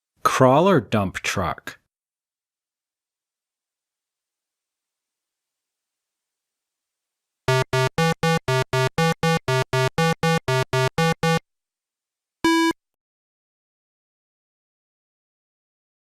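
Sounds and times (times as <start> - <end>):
short synthesized beeps: 7.5 - 11.4, 12.5 - 12.8
single beep at different pitch: 12.5 - 12.8.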